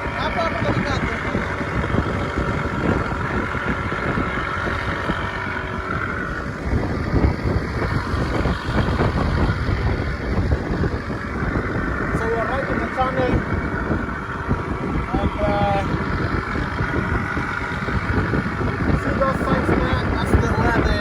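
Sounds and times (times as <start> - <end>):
water rushing along hull: 0.0 - 21.0
wind rumble on microphone: 0.0 - 21.0.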